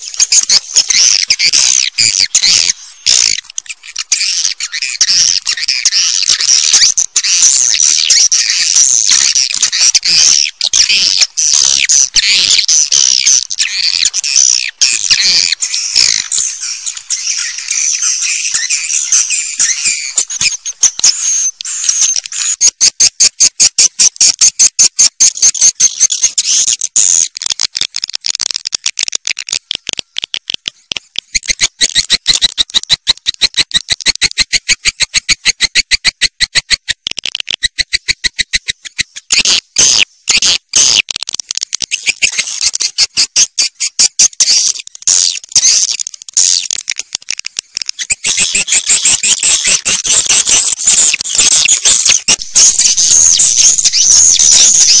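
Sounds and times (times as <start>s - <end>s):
swiftlets twittering: 0.0s - 22.6s, 47.9s - 55.0s.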